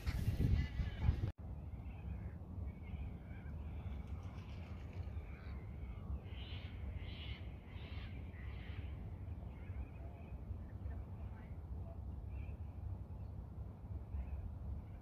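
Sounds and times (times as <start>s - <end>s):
wind rumble on microphone: 0.0s - 6.1s.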